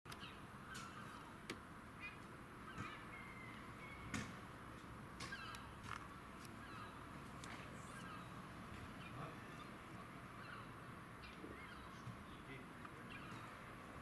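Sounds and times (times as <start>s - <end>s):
faint bird chirps: 0.1s - 1.4s, 2.0s - 4.2s, 5.2s - 5.8s, 6.6s - 13.7s
low background hum: 0.1s - 14.0s.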